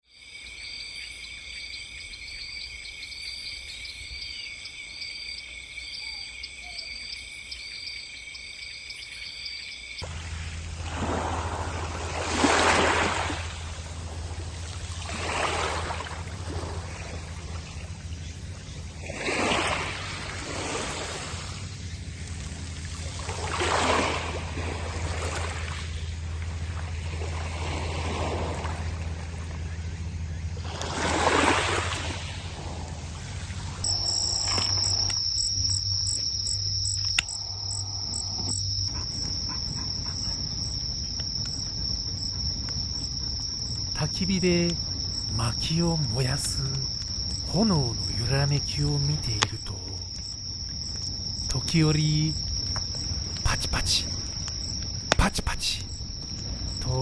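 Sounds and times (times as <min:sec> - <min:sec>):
insects trilling: 0:00.0 - 0:57.0
low hum: 0:10.0 - 0:51.2.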